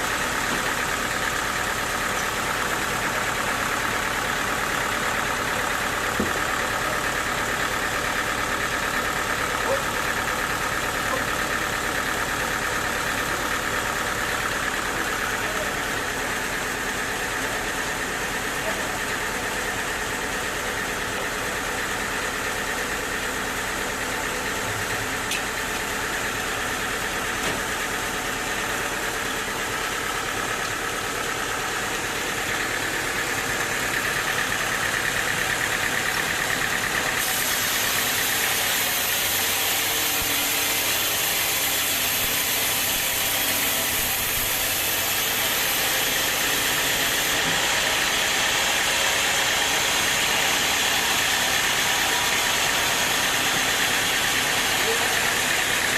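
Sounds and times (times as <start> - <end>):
sawmill machinery running: 0.0 - 55.9.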